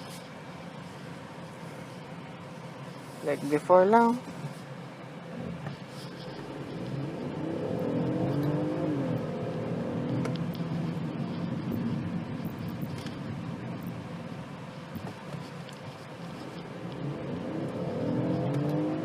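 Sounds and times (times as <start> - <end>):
car engine accelerating: 5.2 - 14.7, 16.3 - 19.0.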